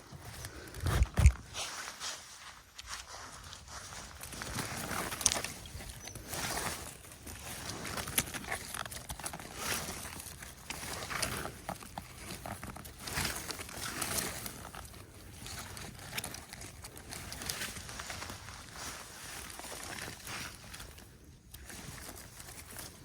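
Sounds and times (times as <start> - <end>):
footsteps on forest floor: 0.0 - 11.6
twigs cracking: 4.1 - 23.0.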